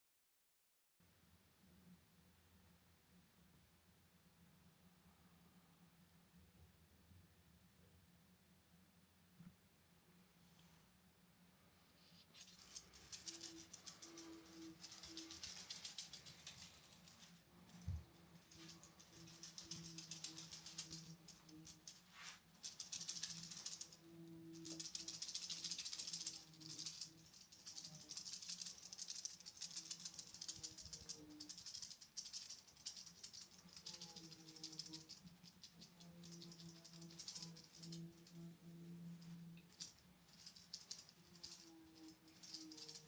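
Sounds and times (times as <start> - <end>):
confetti rattling in brushes: 12.2 - 38.4, 39.2 - 43.0.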